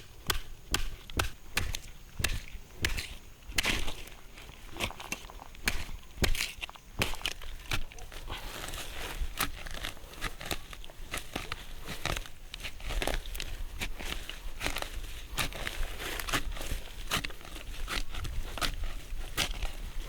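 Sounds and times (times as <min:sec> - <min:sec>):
twigs snapping: 0:00.0 - 0:19.8
dry leaves and twigs crackling: 0:00.0 - 0:20.0.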